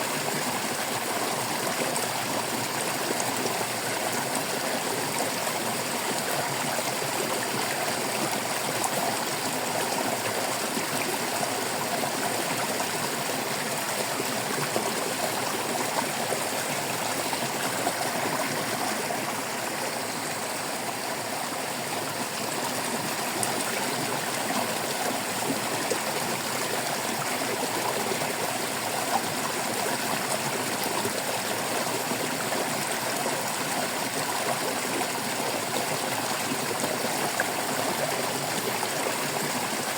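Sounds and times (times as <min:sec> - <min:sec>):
shallow stream babbling over stones: 0:00.0 - 0:39.9.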